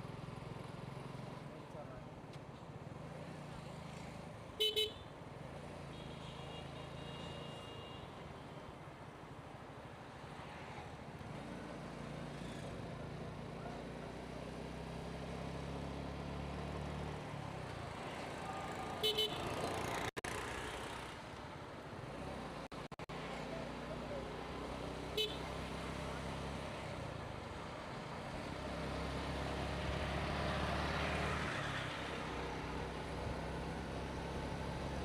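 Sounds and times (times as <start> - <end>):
road noise: 0.0 - 35.0
vehicle horn beeps: 4.6 - 5.0, 5.9 - 8.1, 19.0 - 19.6, 25.2 - 25.5.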